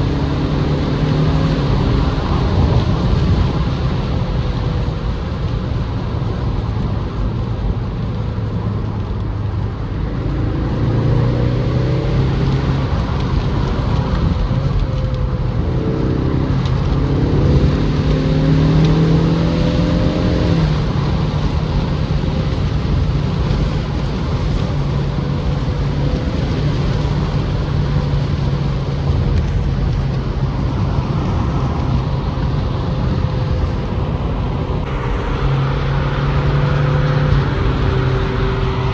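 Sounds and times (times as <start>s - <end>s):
car engine accelerating: 0.0s - 38.9s
road noise: 0.0s - 38.9s
wind noise: 0.0s - 38.9s.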